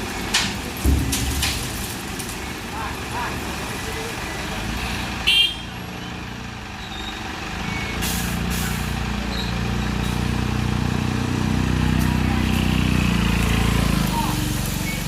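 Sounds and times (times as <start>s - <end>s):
diesel truck engine revving: 0.0s - 15.0s.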